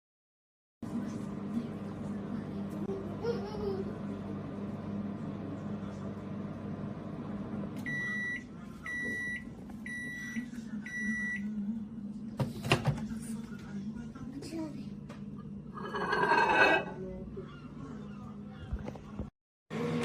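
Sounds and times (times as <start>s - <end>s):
microwave oven humming: 0.8s - 16.2s, 16.9s - 20.0s
microwave beeps: 7.8s - 11.6s.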